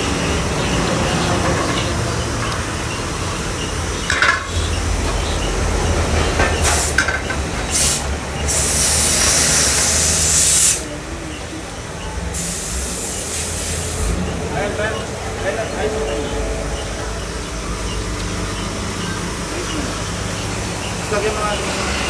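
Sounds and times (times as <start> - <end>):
compressed air hissing from air gun: 6.6 - 10.9, 12.3 - 14.2.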